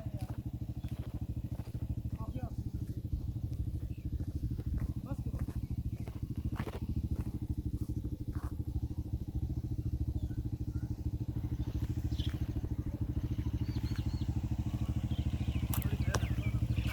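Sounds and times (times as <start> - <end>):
tractor diesel engine throbbing: 0.0 - 16.9.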